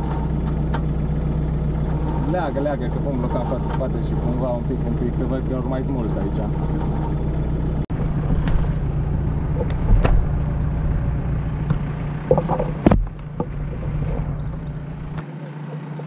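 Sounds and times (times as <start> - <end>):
engine idling: 0.0 - 16.0
brush rustling: 7.9 - 16.0.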